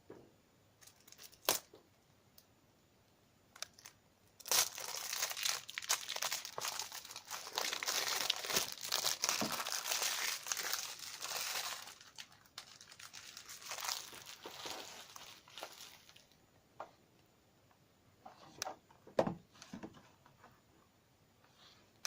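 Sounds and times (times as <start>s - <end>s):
plastic wrapping crinkling: 0.8s - 1.8s, 3.6s - 16.4s.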